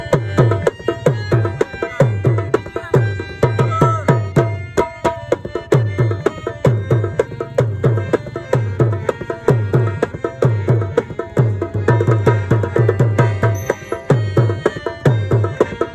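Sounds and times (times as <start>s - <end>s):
fast hand-drum rhythm: 0.0s - 15.9s
plucked rabab strings: 0.0s - 15.9s.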